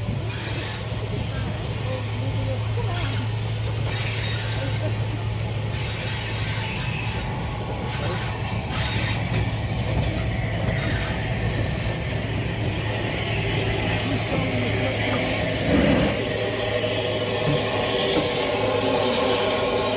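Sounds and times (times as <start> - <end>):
train wheel squeal: 0.2 - 1.0, 2.9 - 19.9.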